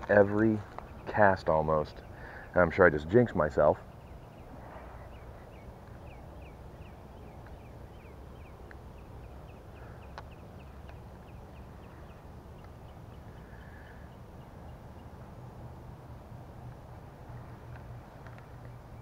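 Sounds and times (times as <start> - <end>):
low outdoor rumble: 0.0 - 19.0
bird calling with high chirps: 0.4 - 15.2
faint sharp clicks: 8.6 - 8.8, 10.0 - 11.0, 17.6 - 18.8.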